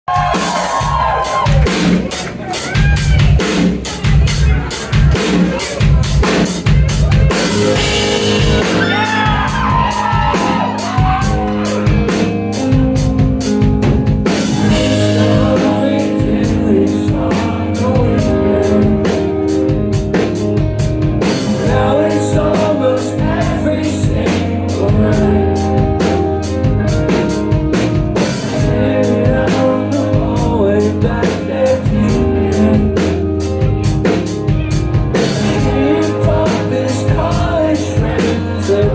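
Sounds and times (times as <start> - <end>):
drum kit hits: 0.1 - 30.6
rock band playing loud: 0.1 - 38.9
person singing: 6.9 - 13.6, 14.2 - 20.4, 21.2 - 38.9.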